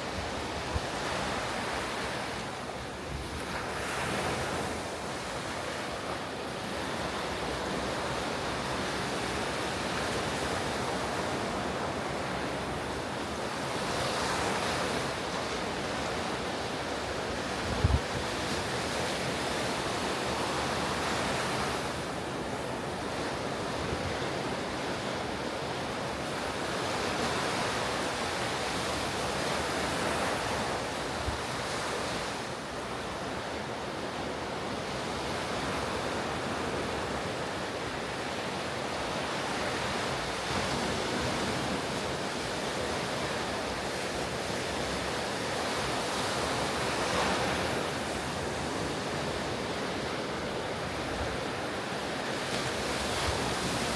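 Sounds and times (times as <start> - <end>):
ocean surf breaking: 6.5 - 53.9
wind on microphone: 17.4 - 19.0.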